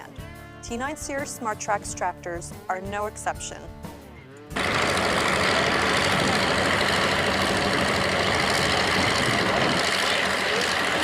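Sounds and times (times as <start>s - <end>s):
tractor engine running: 4.5s - 11.0s.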